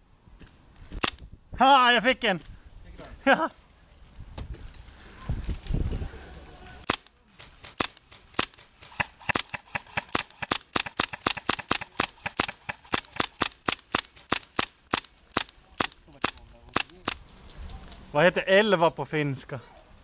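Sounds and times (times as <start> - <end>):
airsoft rifle rapid shots: 6.9 - 17.2.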